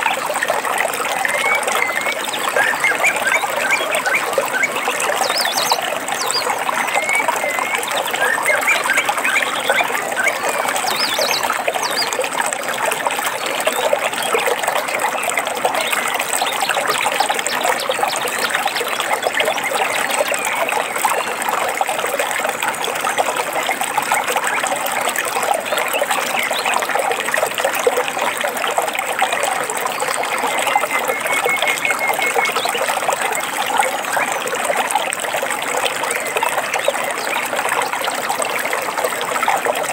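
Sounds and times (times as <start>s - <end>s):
stream babbling: 0.0s - 39.9s
bird chirps: 30.1s - 32.9s.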